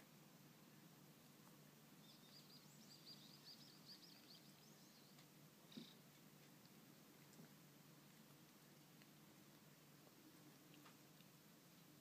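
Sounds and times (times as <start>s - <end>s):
small bird chirping: 2.0s - 6.1s.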